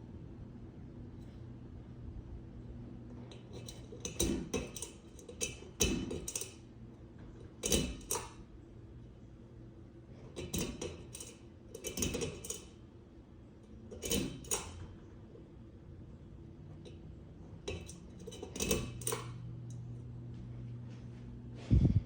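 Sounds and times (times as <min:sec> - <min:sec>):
ceiling fan motor hum: 0:00.0 - 0:22.0
fan clicks and rattles: 0:03.0 - 0:08.6, 0:10.2 - 0:12.9, 0:13.6 - 0:15.5, 0:16.7 - 0:21.2.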